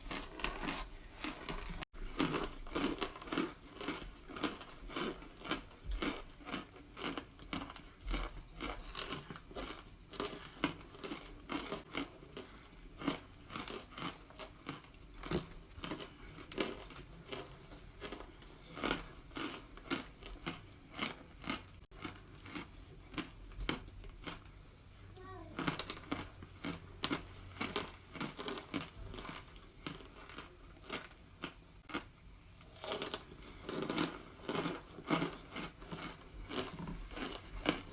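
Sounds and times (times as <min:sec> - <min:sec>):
person chewing crunchy chunks: 0:00.0 - 0:37.9.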